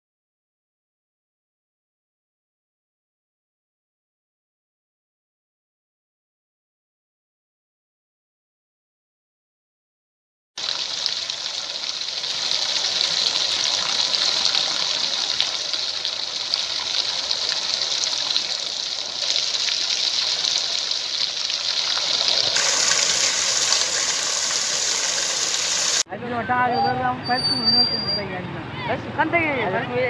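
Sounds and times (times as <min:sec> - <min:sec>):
heavy rain falling: 0:10.6 - 0:26.0.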